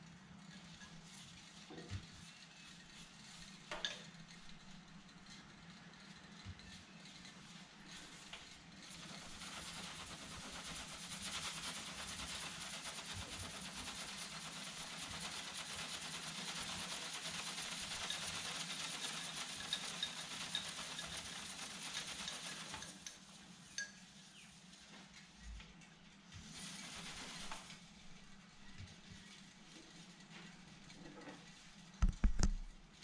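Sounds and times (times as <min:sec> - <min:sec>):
steam hissing from jets: 0:08.9 - 0:23.3, 0:26.4 - 0:27.8.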